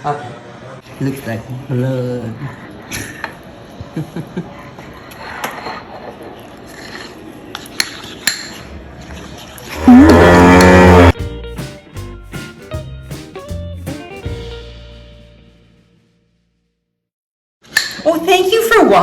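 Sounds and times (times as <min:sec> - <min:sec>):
cow mooing: 0:09.7 - 0:11.2.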